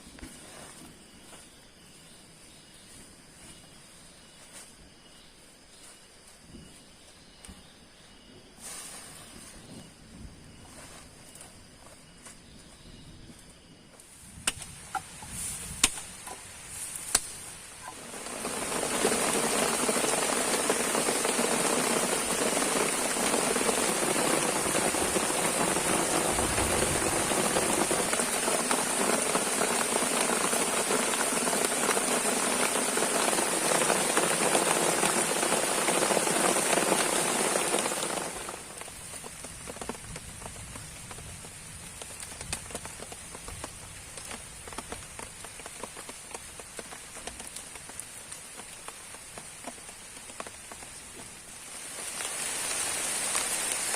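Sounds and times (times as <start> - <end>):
sharp snaps: 14.4 - 15.1, 15.7 - 16.4, 17.0 - 17.5
heavy rain pouring: 17.6 - 53.9.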